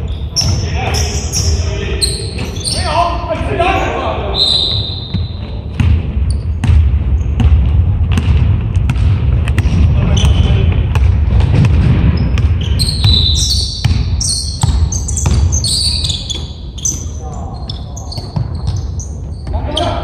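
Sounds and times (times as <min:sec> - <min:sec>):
thuds and knocks echoing: 0:05.1 - 0:13.2.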